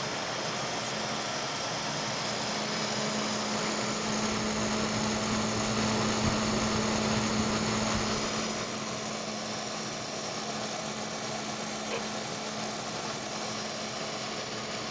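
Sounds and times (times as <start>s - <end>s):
computer fan rattling: 3.4s - 8.8s
low hum: 3.9s - 8.7s.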